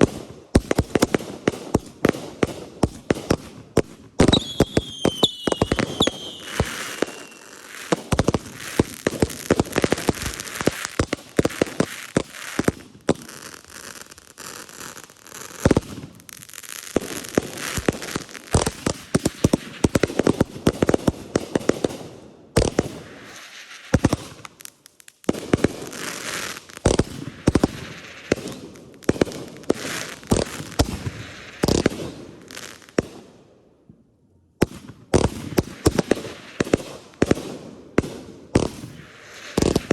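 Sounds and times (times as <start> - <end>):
fireworks bangs: 0.0 - 16.2, 34.6 - 39.9
fireworks crackling: 0.0 - 33.2, 35.2 - 39.9
falling firework whistle: 4.3 - 7.7.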